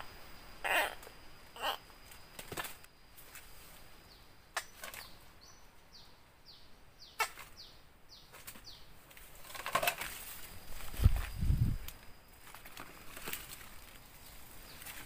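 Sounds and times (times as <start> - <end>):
rustling: 8.3 - 15.0.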